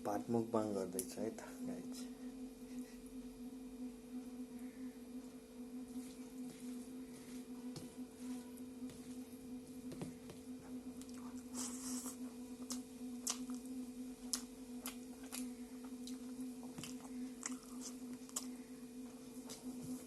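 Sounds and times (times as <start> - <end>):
steady low hum: 0.0 - 20.0
wet chewing and mouth clicks: 11.0 - 18.6.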